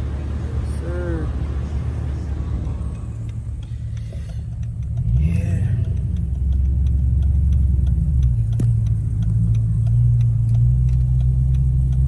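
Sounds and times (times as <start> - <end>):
car interior engine drone: 0.0 - 12.0
light regular ticking: 2.6 - 12.0.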